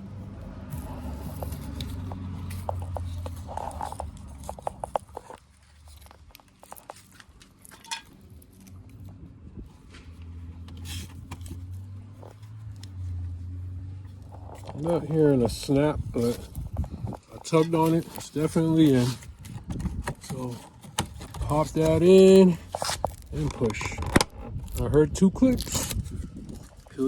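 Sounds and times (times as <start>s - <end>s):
plastic clicks and rustling: 16.2s - 27.0s.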